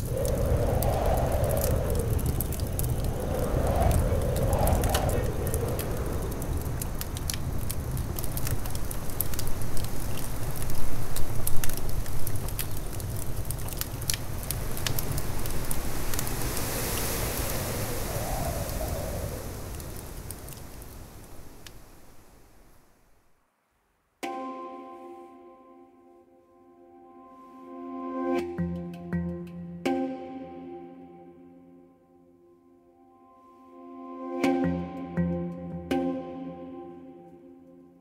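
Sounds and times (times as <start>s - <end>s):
low rumble: 0.0s - 7.7s
fire crackling and popping: 0.0s - 22.5s.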